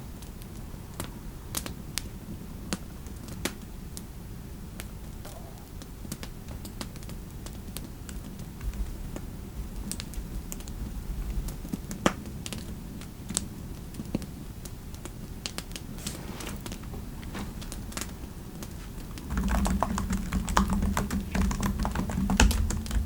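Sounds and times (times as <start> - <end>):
low fireplace ambience: 0.0 - 23.0
computer keyboard typing: 19.1 - 23.0.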